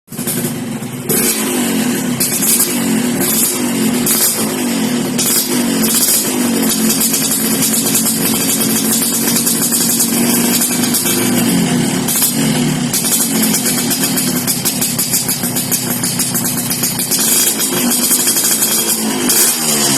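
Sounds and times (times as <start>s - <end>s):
two-stroke engine revving: 0.1s - 19.9s.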